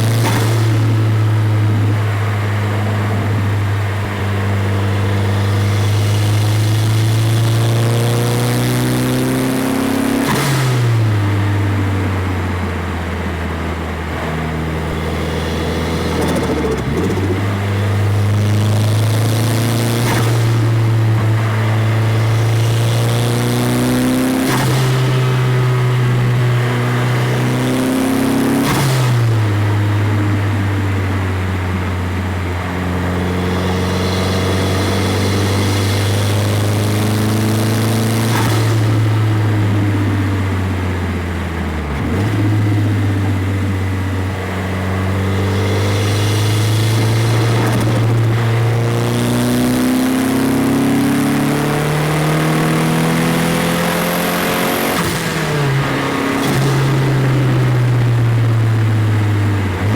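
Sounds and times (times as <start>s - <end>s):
car engine accelerating: 0.0s - 59.9s
turbo blow-off hiss: 45.1s - 48.7s.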